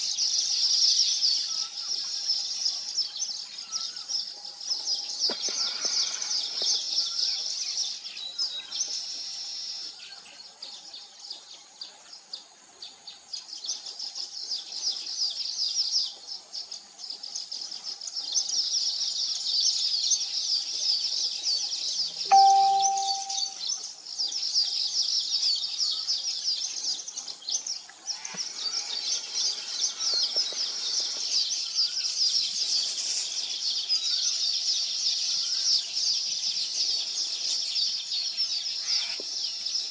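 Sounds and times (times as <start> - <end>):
weaver birds chattering: 0.0 - 12.5, 13.1 - 39.9
short clear lower tone: 22.3 - 23.6.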